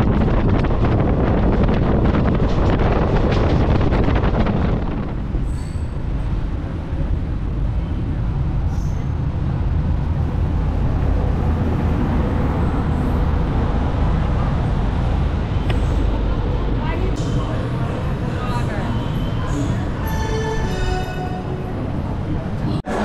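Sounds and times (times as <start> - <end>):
gust of wind noise: 0.0 - 6.6
train rumbling: 0.0 - 23.0.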